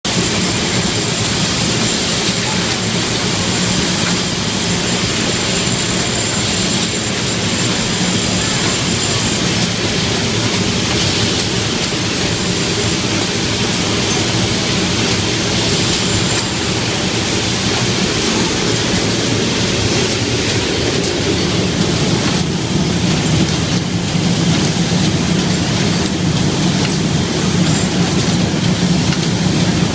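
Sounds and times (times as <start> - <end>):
factory machinery din: 0.1 - 29.9.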